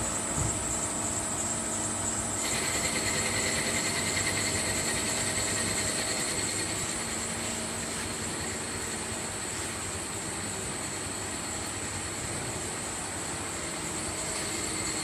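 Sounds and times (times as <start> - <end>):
high machine whine: 0.0 - 15.0
machine hum and hiss: 0.0 - 15.0.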